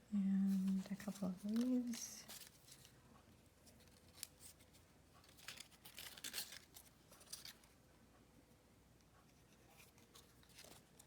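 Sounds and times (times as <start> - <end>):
paper rustling: 0.6 - 3.0, 3.7 - 7.8, 9.6 - 11.0.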